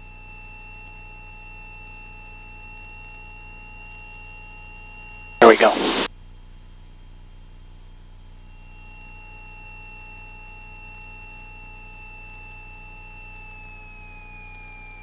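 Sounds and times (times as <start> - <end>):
low steady hum: 5.4 - 6.1.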